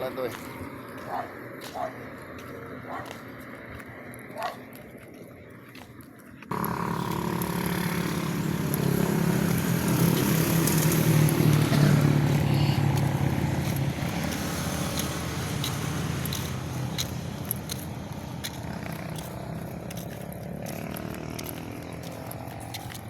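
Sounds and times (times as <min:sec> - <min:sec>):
engine running steadily: 0:00.2 - 0:23.0.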